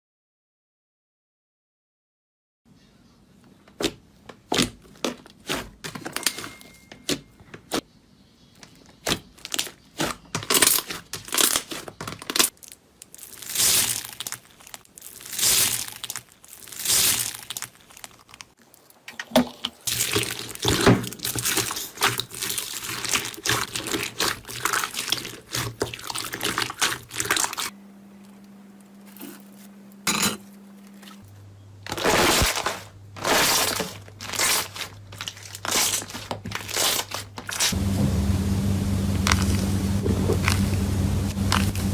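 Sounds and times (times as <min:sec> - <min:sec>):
slime clicking and squishing: 0:19.8 - 0:27.7
low steady hum: 0:27.6 - 0:32.0, 0:37.8 - 0:41.9.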